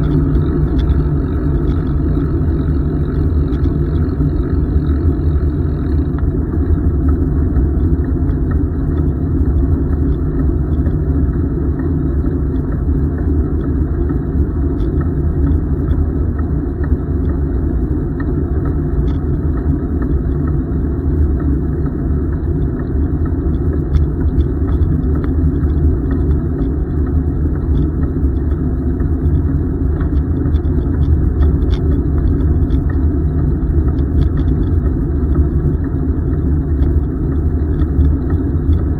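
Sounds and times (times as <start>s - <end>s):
bicycle tyres rolling on pavement: 0.0s - 9.9s.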